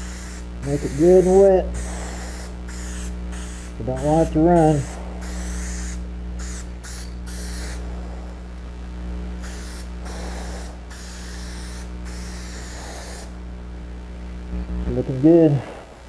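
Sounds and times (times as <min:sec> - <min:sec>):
spray paint can hissing: 0:00.0 - 0:08.0, 0:09.4 - 0:13.4
steady low hum: 0:00.0 - 0:16.0.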